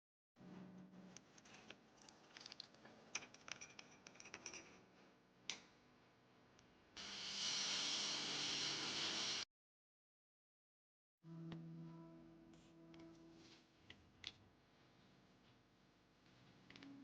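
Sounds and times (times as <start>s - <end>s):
steady hiss: 7.0s - 9.4s.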